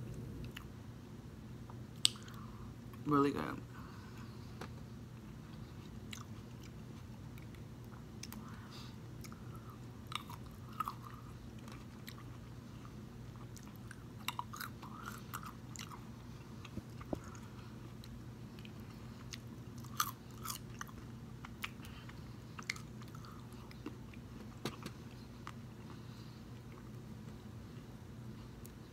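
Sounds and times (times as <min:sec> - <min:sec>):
low hum: 0:00.0 - 0:28.9
chewing crisp grapes: 0:00.1 - 0:00.8, 0:05.1 - 0:27.6.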